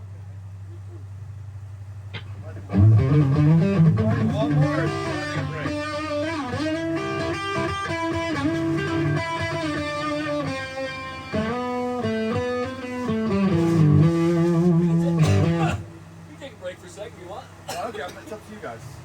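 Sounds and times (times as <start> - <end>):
guitar lead with sliding notes: 2.1 - 16.3
guitar chords: 2.1 - 16.4.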